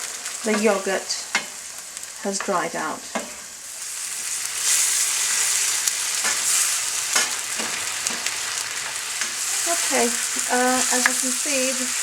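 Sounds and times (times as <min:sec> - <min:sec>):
chicken sizzling in frying pan: 0:00.0 - 0:12.0
spoon scraping pan: 0:06.1 - 0:12.0.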